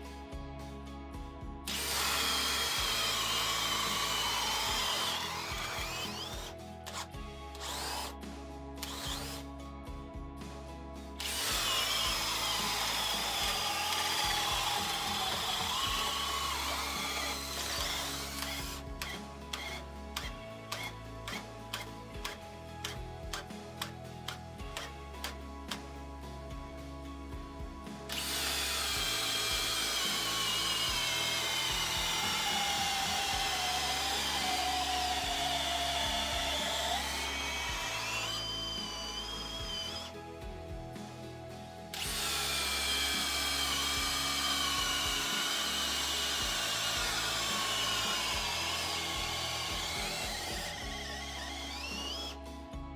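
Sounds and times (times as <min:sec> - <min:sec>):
background music: 0:00.0 - 0:52.9
cordless drill whining: 0:01.6 - 0:09.6, 0:11.1 - 0:26.6, 0:27.7 - 0:52.9.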